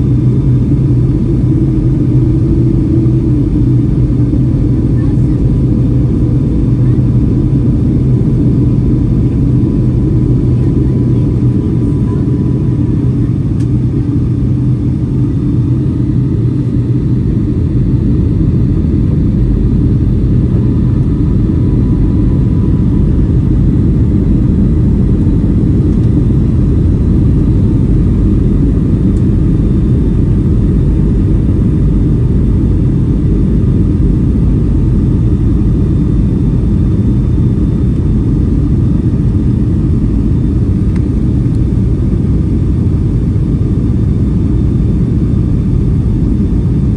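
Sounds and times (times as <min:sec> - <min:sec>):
jet engines rumbling: 0:00.0 - 0:46.9.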